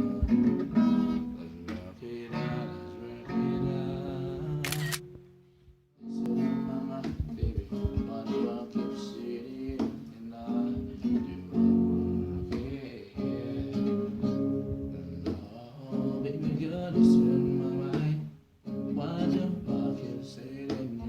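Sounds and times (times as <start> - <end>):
acoustic guitar strumming chords: 0.0 - 5.4, 6.0 - 21.0.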